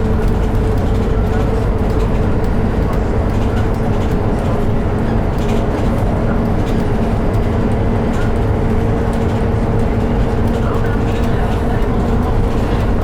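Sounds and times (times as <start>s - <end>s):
bus diesel engine and road drone: 0.0s - 13.0s.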